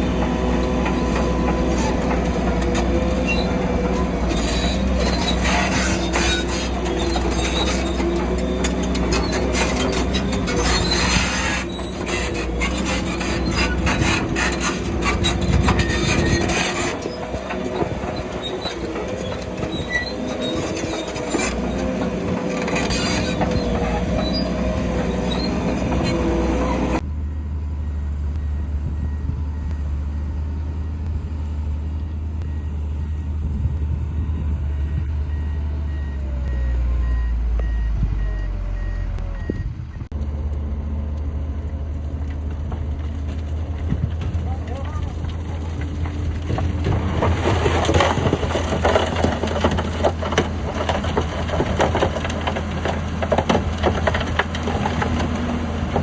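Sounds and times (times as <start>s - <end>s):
bulldozer tracks squealing and clanking: 0.0s - 56.0s
diesel engine rumble: 0.0s - 56.0s
reversing alarm beeps: 27.1s - 31.0s, 32.1s - 33.4s, 34.7s - 40.0s.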